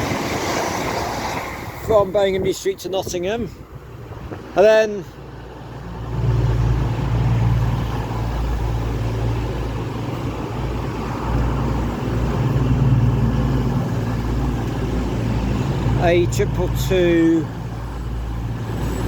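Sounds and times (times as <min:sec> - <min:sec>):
train engine rumble: 0:00.0 - 0:19.0
wheels on rails: 0:06.9 - 0:19.0.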